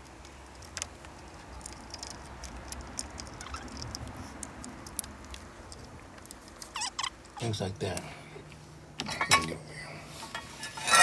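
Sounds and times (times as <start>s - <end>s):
metal clicks and scrapes: 0.0s - 7.5s, 10.3s - 11.0s.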